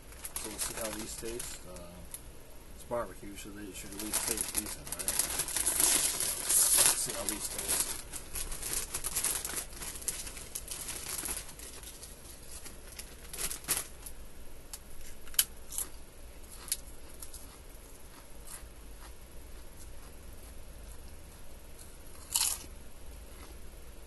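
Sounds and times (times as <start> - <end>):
plastic chip bag crinkling: 0.0 - 2.0, 3.7 - 14.2, 21.8 - 22.7.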